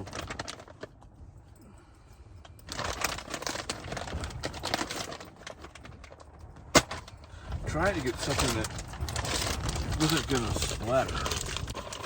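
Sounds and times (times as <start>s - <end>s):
food packaging crinkling: 0.0s - 1.0s, 2.6s - 12.0s.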